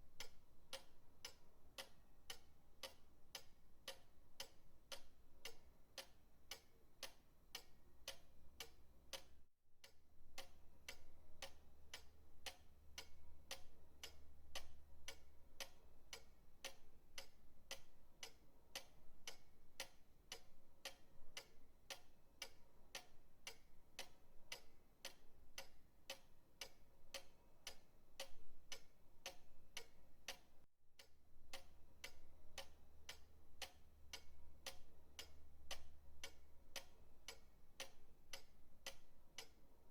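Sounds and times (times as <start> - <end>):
pendulum clock ticking: 0.0 - 39.9.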